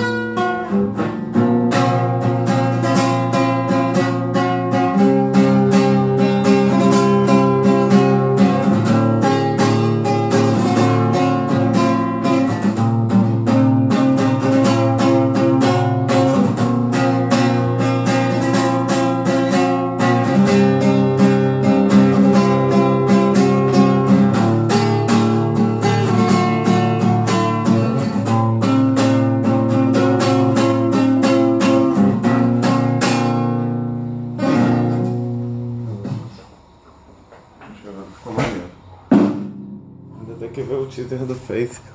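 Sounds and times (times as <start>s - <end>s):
acoustic guitar strumming chords: 0.0s - 37.6s, 38.4s - 41.9s.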